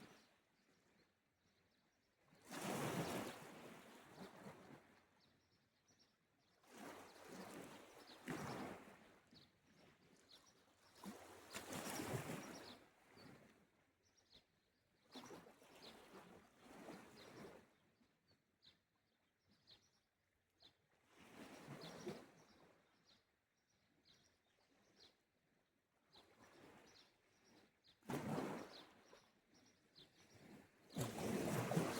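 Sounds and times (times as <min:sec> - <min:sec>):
faint sea waves on shore: 0:02.4 - 0:05.0, 0:10.8 - 0:13.6, 0:30.3 - 0:31.9.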